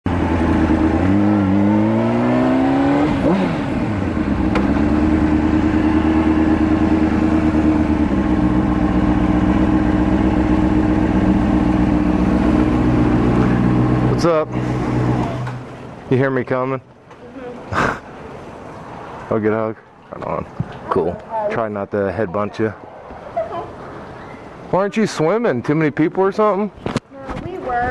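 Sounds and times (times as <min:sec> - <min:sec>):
motorcycle engine accelerating: 0:00.0 - 0:15.8.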